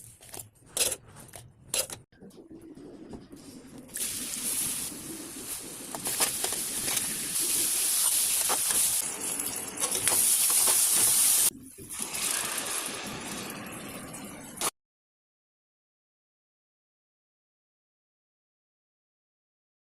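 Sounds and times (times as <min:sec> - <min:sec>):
stirring clicks and scrapes: 0:00.0 - 0:02.4, 0:05.9 - 0:07.2
food sizzling in a pan: 0:04.0 - 0:13.7.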